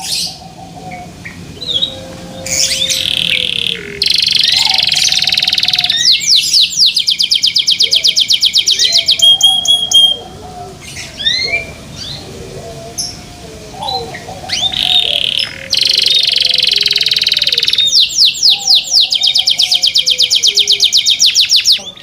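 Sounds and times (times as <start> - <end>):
canary singing: 0.0 - 22.0.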